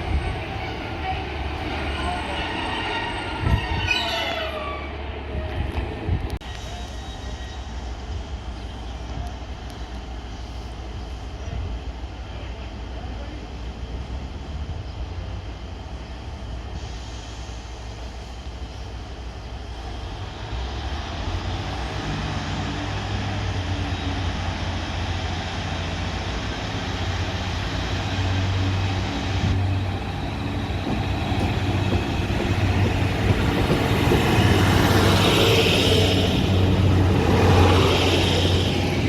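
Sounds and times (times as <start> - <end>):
diesel train engine hum: 0.0 - 39.0
train wheel noise: 24.1 - 39.0.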